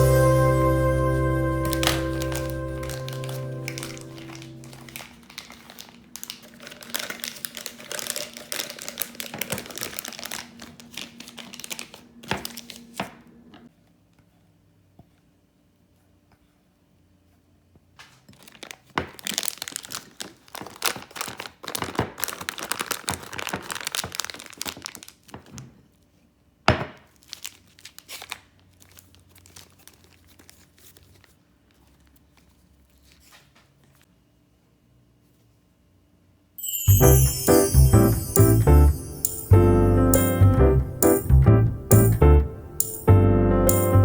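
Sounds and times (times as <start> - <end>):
plastic bag crinkling: 1.6 - 13.1, 18.3 - 25.6, 27.1 - 32.1.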